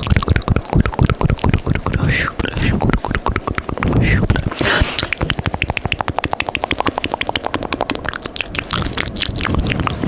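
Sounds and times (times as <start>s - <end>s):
wet tongue and lip clicks: 0.0s - 10.0s.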